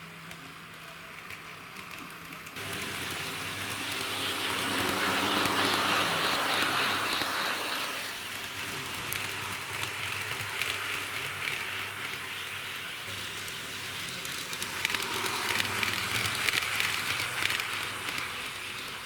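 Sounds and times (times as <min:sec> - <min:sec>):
model train wheels rattling: 0:00.7 - 0:19.0.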